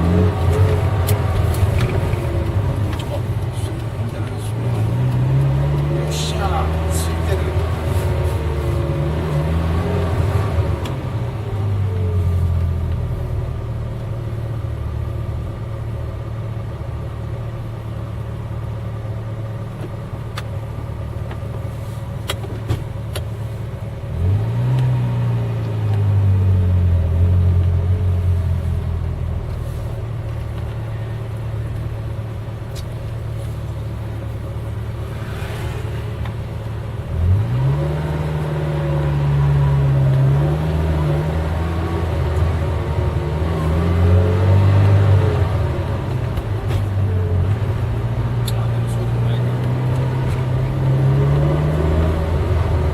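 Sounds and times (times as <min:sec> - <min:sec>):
car engine revving: 0:00.0 - 0:17.2, 0:20.0 - 0:52.9.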